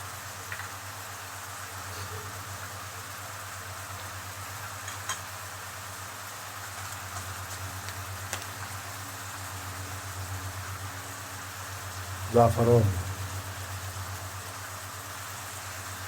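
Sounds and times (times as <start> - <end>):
seafood sizzling in oil: 0.0 - 12.3, 13.0 - 16.0
low hum: 12.2 - 13.8.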